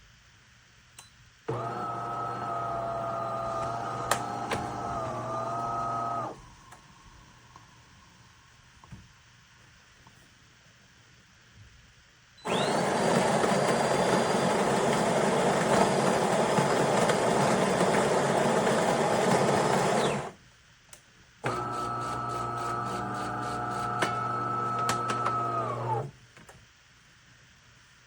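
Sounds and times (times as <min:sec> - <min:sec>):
coffee grinder grinding beans: 0:01.5 - 0:06.3, 0:12.5 - 0:20.4, 0:21.5 - 0:26.1
water pump humming: 0:01.5 - 0:06.5, 0:21.4 - 0:26.1.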